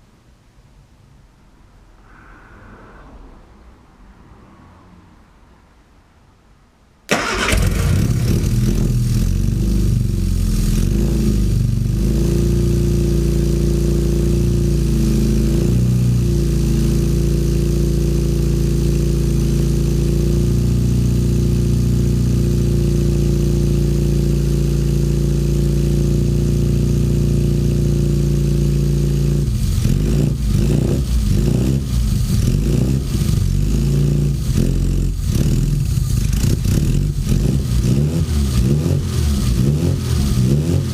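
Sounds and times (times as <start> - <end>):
car engine starting and idling: 3.0 - 40.9
engine revving in short blips: 7.1 - 9.9.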